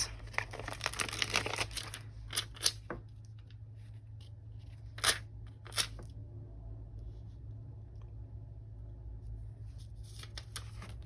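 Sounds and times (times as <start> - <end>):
paper handling: 0.0 - 2.8, 9.7 - 11.0.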